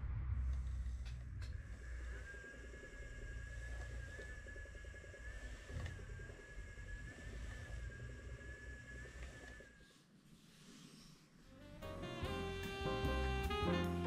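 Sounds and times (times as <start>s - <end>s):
faint low rumble: 0.0s - 10.2s
spinning wheel motor whine: 0.0s - 14.0s.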